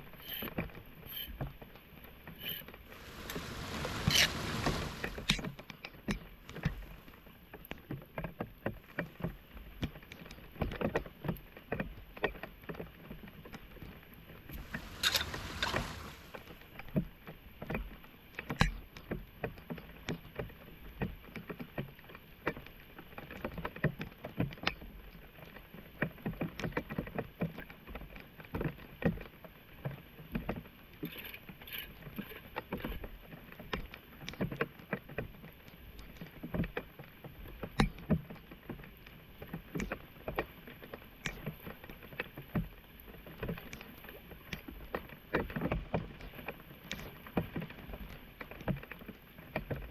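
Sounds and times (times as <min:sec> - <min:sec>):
water splashing and sloshing: 0:02.9 - 0:05.4, 0:14.6 - 0:16.5.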